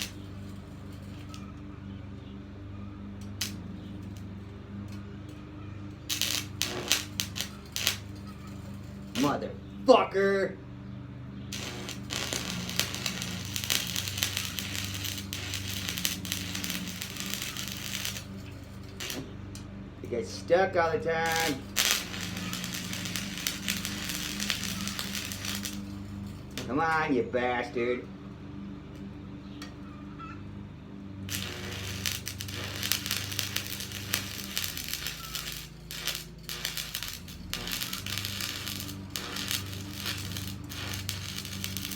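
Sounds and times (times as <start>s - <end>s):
welding arc crackling: 0.0s - 1.4s, 3.3s - 4.2s, 6.0s - 9.4s, 11.5s - 19.4s, 21.1s - 26.8s, 31.3s - 41.9s
welding machine hum: 0.0s - 1.7s, 3.0s - 9.8s, 11.5s - 19.8s, 21.2s - 26.8s, 31.2s - 41.9s.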